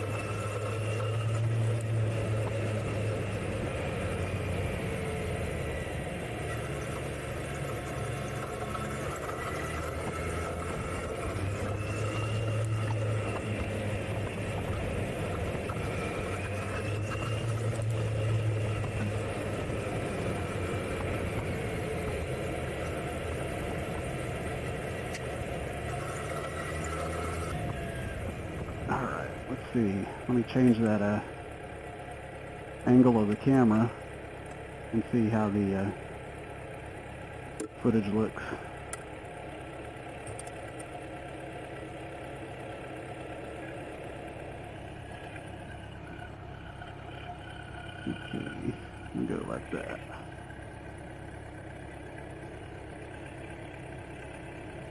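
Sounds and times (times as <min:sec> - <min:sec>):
motorcycle engine idling: 0:35.9 - 0:54.9.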